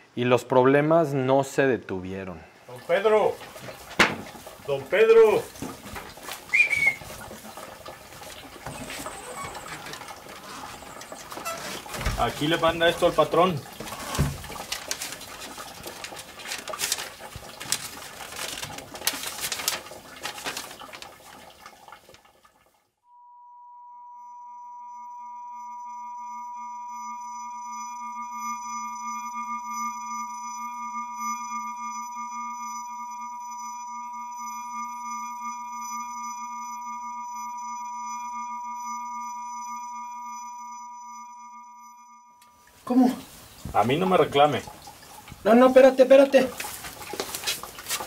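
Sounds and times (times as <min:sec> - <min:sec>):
rustling: 0:05.4 - 0:21.5, 0:46.2 - 0:48.0
high electronic tone: 0:23.2 - 0:42.6.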